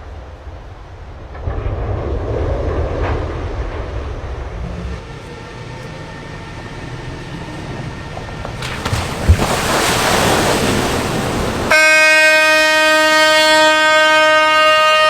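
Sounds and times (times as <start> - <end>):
boat sliding down rumbling: 0.0 - 11.8.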